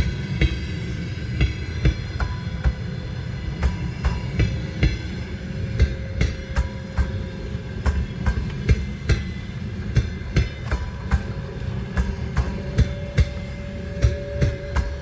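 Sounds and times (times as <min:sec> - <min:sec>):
train wheels clacking: 0:00.0 - 0:15.0.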